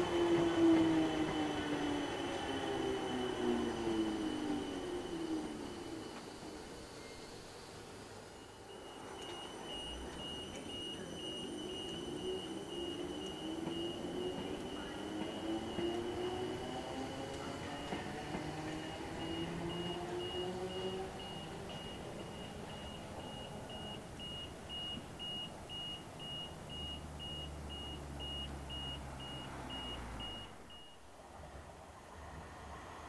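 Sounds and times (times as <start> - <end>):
train motors whining: 0.0 - 31.0
high electronic beeping: 18.6 - 31.0.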